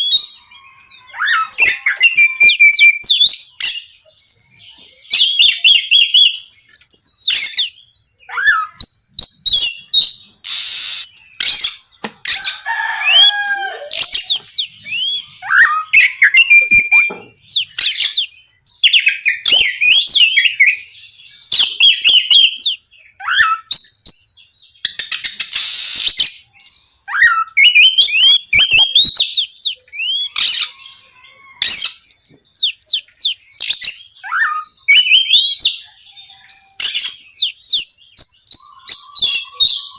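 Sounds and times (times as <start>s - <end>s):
bird singing whistled notes: 0.0s - 12.5s, 13.1s - 39.9s
harsh rasping bird note: 10.4s - 11.7s.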